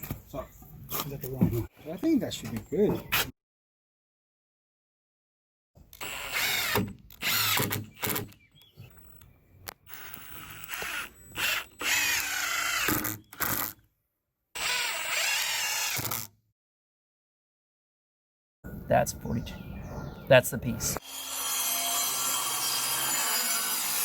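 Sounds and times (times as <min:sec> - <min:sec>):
power tool motor running: 0:06.0 - 0:08.3, 0:09.9 - 0:13.8, 0:14.6 - 0:16.3, 0:21.0 - 0:24.0.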